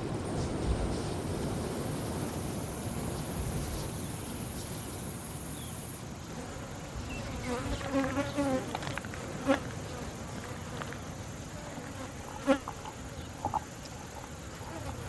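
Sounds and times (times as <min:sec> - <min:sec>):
insect buzzing: 0:03.2 - 0:15.0.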